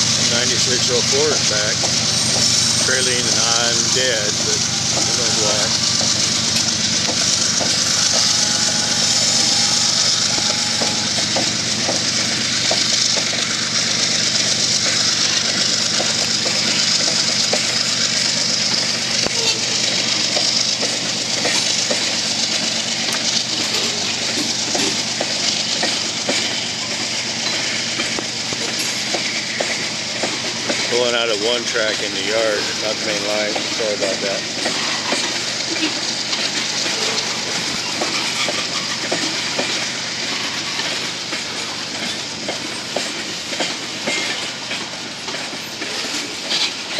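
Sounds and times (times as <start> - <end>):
constant hiss: 0.0 - 46.9
locomotive engine drone: 0.0 - 46.9
wheels clicking on rails: 0.0 - 46.9.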